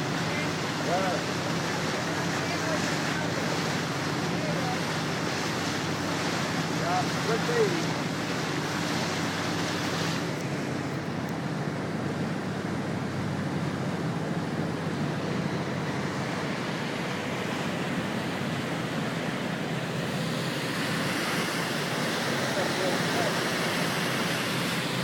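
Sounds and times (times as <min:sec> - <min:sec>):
motorboat engine drone: 0:00.0 - 0:25.0
rush of water: 0:00.0 - 0:25.0.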